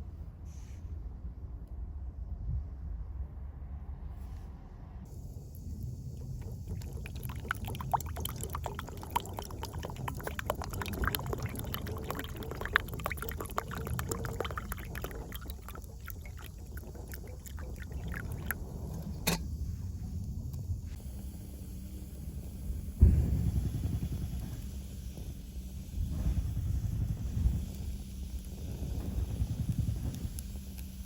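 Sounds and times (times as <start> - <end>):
wood fire crackling and popping: 26.1 - 30.9.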